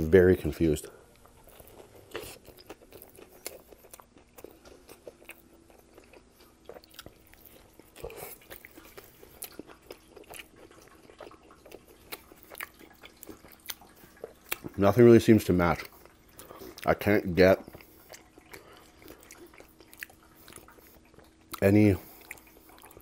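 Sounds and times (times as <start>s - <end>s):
wet chewing with mouth clicks: 1.1s - 23.0s
biting into sandwich: 1.4s - 14.8s.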